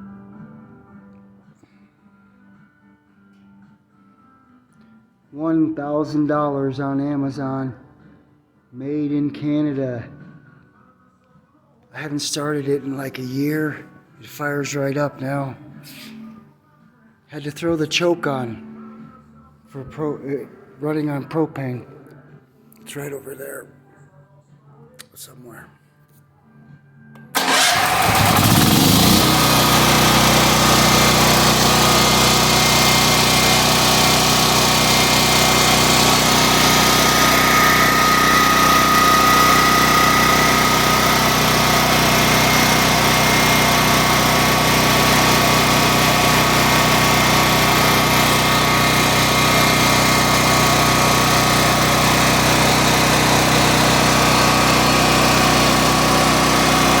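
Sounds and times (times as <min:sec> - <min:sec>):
generator engine running: 0:27.4 - 0:57.0.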